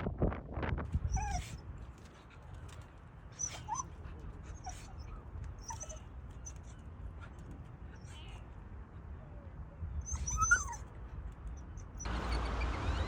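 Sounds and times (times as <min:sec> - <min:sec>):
wind buffeting microphone: 0:00.0 - 0:04.4.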